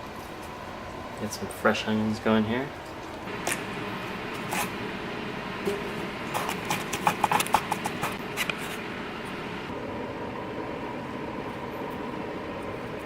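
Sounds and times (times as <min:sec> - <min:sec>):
knife chopping on cutting board: 0:06.4 - 0:08.2.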